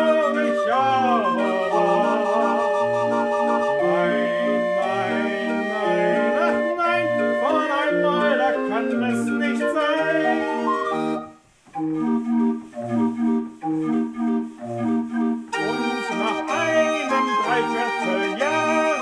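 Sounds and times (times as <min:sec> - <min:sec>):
barrel organ playing folk tune: 0:00.0 - 0:19.0.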